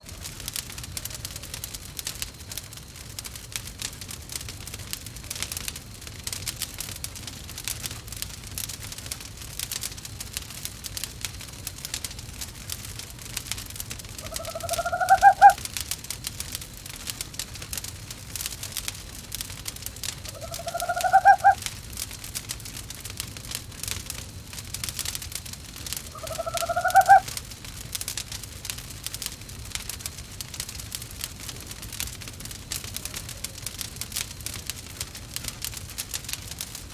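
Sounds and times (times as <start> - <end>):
crackling wood fire: 0.0 - 36.9
owl hooting: 14.2 - 15.6, 20.3 - 21.6, 26.1 - 27.3.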